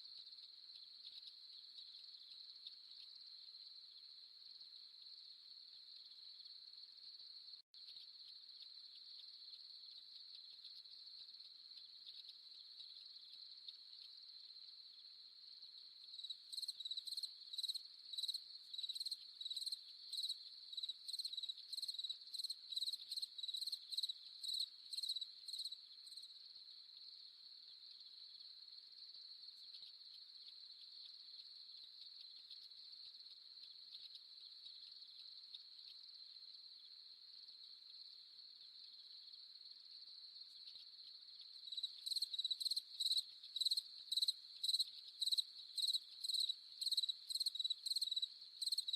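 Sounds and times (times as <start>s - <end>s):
pulsing insect chirping: 0.0s - 48.9s
crickets trilling: 29.1s - 48.9s.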